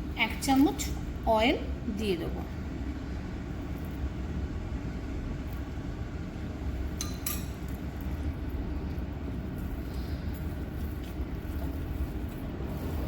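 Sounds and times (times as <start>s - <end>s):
low background rumble: 0.0s - 13.0s
spoon clinking on mixing bowl: 7.0s - 7.8s.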